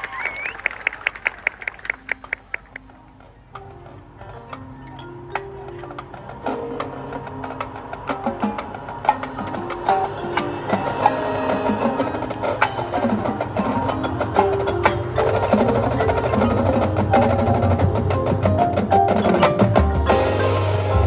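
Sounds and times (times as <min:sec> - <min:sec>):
percussion clicks and struck notes: 0:00.7 - 0:21.0
marching band playing: 0:05.9 - 0:21.0.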